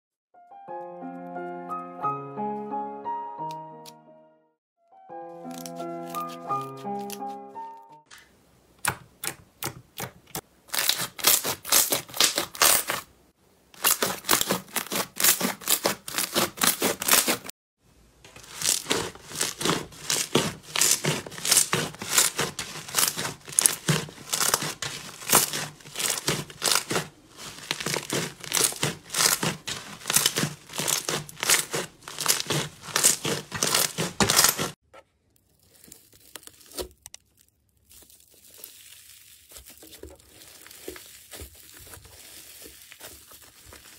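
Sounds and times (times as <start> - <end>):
slime crackling and popping: 10.7 - 13.1, 13.8 - 17.5, 18.3 - 34.8, 35.4 - 43.9.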